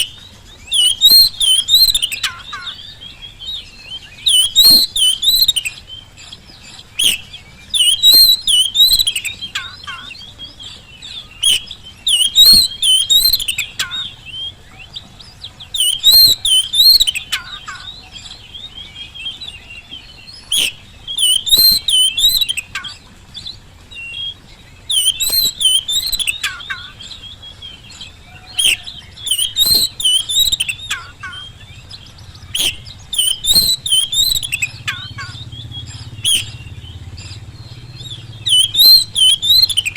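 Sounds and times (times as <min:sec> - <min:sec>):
bird singing whistled phrases: 0:00.0 - 0:39.9
sharp bird clicks: 0:04.0 - 0:10.0, 0:10.7 - 0:14.5, 0:15.7 - 0:18.3, 0:20.5 - 0:23.6, 0:24.9 - 0:27.1, 0:27.9 - 0:39.9.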